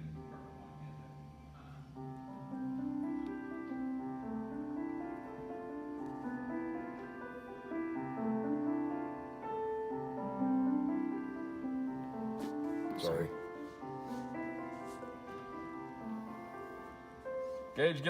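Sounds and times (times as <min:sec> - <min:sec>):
piano playing slow chords: 0:00.0 - 0:18.0.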